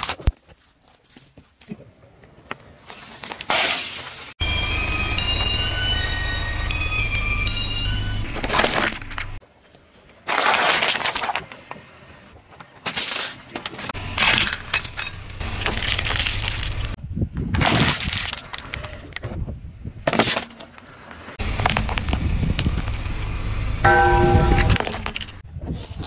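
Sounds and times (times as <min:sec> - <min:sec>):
objects crushed under a tyre: 0:12.8 - 0:17.0.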